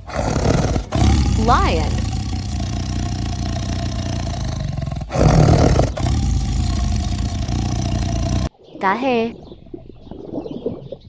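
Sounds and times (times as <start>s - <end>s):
lion roaring: 0.0s - 8.5s.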